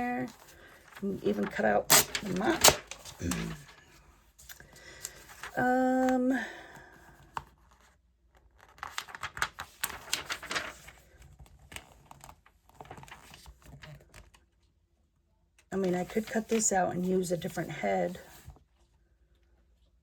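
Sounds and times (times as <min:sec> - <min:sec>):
magazine paper rustling: 0:00.0 - 0:06.2, 0:08.5 - 0:14.3.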